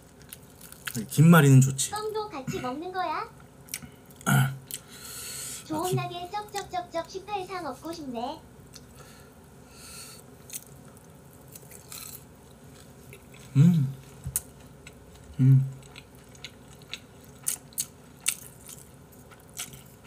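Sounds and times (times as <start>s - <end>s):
person chewing food: 0.0s - 1.0s, 3.6s - 5.0s, 10.4s - 20.0s
hummed mm sounds: 3.7s - 6.8s, 13.2s - 14.5s, 15.2s - 16.0s.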